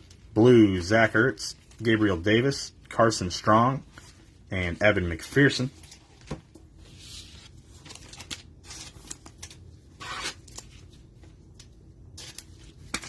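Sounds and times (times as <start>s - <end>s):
plastic wrapper crinkling and tearing: 7.8s - 13.0s.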